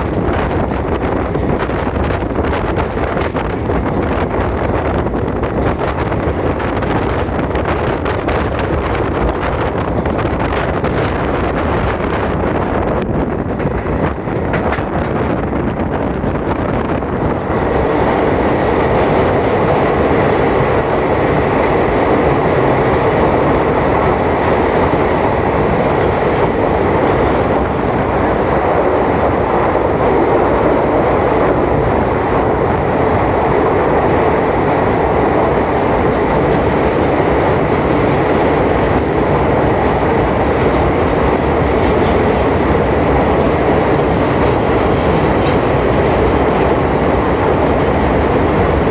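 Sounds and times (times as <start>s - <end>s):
train wheels rumbling on rails: 0.0s - 48.9s.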